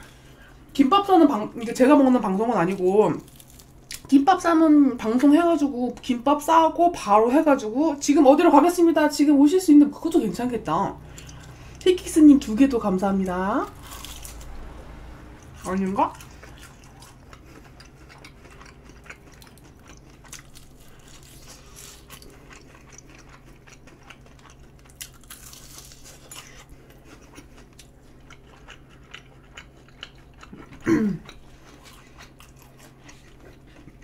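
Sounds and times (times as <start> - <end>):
crunchy chewing of fried chicken: 2.6 - 4.1, 13.6 - 14.6, 15.3 - 34.0.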